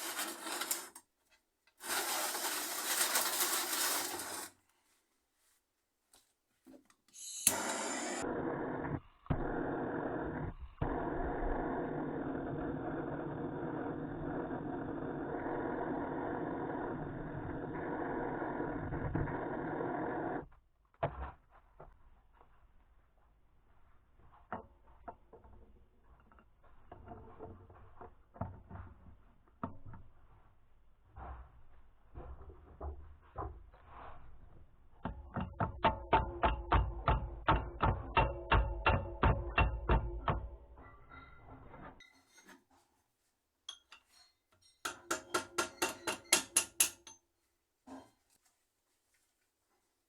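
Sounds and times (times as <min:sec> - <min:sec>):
tools and metal parts knocking: 0:35.2 - 0:41.4, 0:43.7 - 0:47.2.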